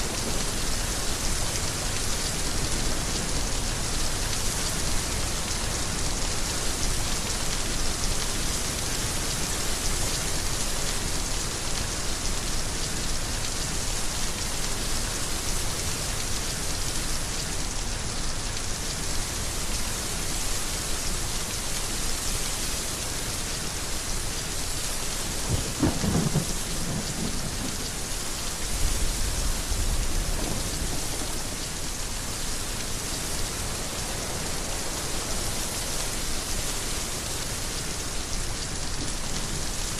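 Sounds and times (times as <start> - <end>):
heavy rain falling: 0.0 - 39.9
deep thunder rumble: 25.4 - 28.0
thunder crack: 25.5 - 27.8.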